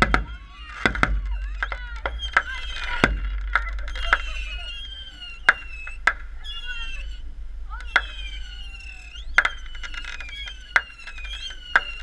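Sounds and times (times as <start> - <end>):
fireworks bangs and cracks: 0.0 - 6.3
whistling fireworks: 0.0 - 12.0.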